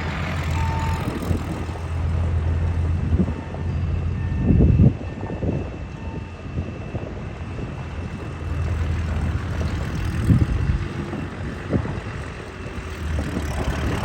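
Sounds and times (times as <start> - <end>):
tractor engine running: 0.0 - 4.1, 7.4 - 14.0.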